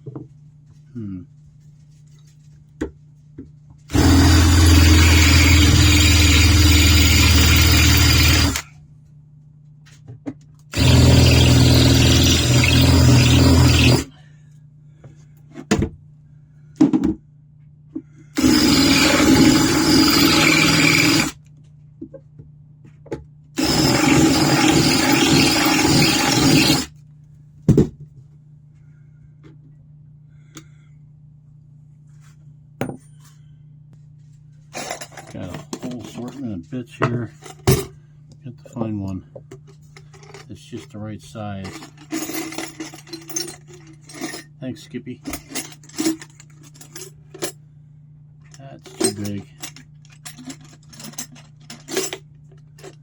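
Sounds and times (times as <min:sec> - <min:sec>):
electric drill running: 0:03.9 - 0:08.6, 0:10.7 - 0:14.1, 0:18.4 - 0:21.4, 0:23.6 - 0:26.9.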